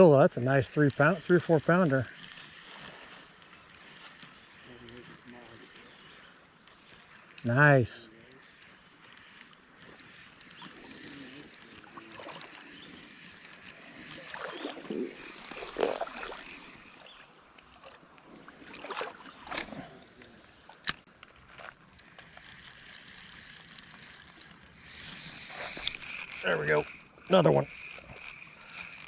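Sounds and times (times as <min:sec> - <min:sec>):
creek water running: 0:00.0 - 0:29.0
water splashes: 0:10.6 - 0:12.8, 0:13.4 - 0:20.8.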